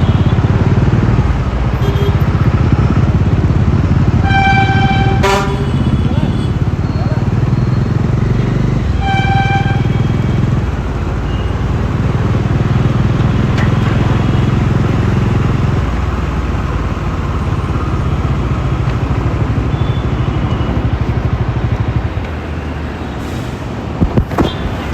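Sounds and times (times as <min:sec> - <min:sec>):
motorcycle engine running: 0:00.0 - 0:11.0
vehicle horn toot: 0:01.8 - 0:02.2, 0:04.2 - 0:06.6, 0:09.0 - 0:10.4.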